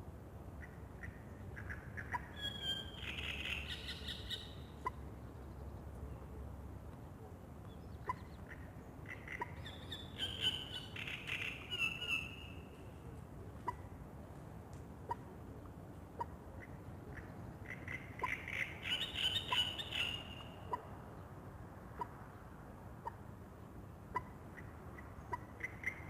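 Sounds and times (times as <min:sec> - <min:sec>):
songbird singing: 0:01.0 - 0:06.4, 0:07.6 - 0:12.9, 0:16.2 - 0:21.4
bird chip calls: 0:08.0 - 0:12.6, 0:16.2 - 0:20.9.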